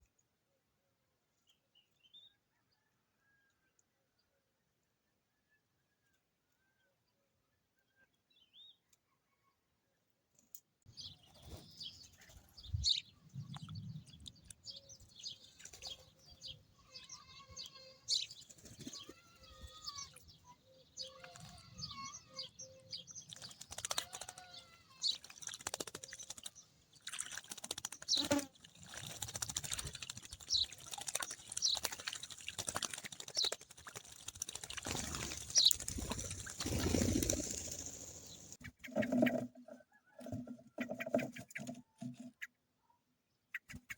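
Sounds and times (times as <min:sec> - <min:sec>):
birds chirping and calling: 0:10.9 - 0:42.6, 0:43.5 - 0:43.9
wing flapping: 0:18.3 - 0:19.7, 0:23.2 - 0:39.5.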